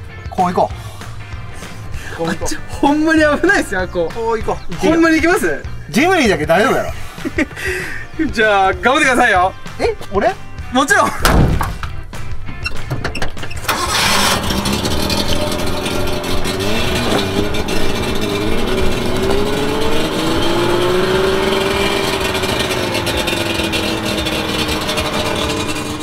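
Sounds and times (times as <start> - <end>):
two-stroke engine revving: 13.7 - 26.0.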